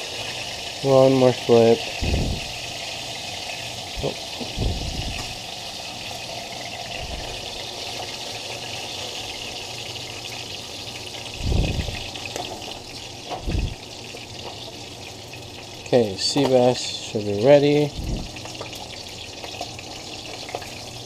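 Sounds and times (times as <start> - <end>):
fish frying in hot oil: 0.0 - 21.0
low thumps: 11.4 - 12.1.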